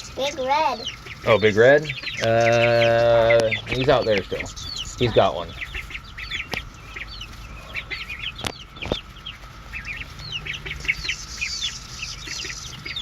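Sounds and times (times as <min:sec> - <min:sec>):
chickens clucking: 0:00.0 - 0:13.0
cicada chorus droning: 0:00.0 - 0:13.0.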